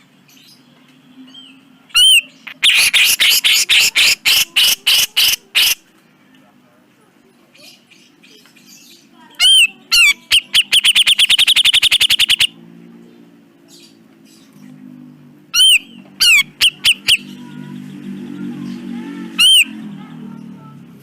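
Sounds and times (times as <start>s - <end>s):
bulbul singing harsh notes: 10.3s - 12.6s.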